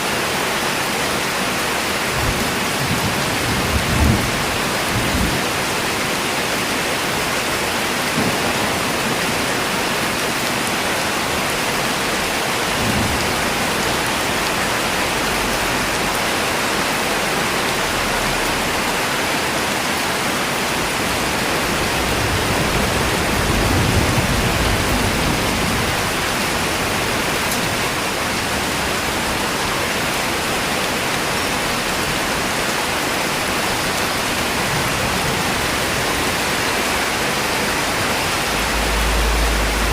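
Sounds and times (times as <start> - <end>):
heavy rain: 0.0 - 39.9
low rumble: 38.2 - 39.9.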